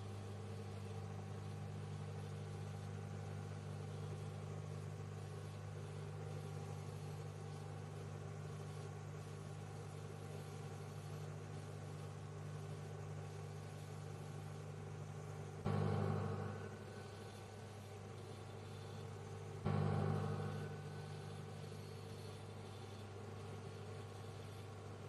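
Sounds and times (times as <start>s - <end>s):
microwave oven humming: 0.0s - 25.0s.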